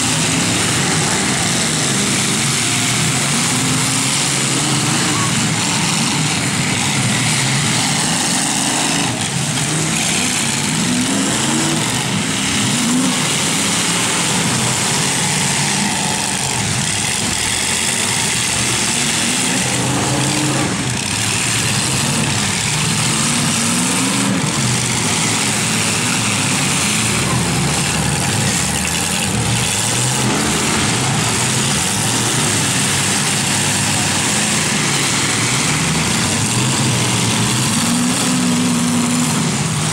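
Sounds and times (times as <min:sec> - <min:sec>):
truck engines revving: 0:00.0 - 0:39.9.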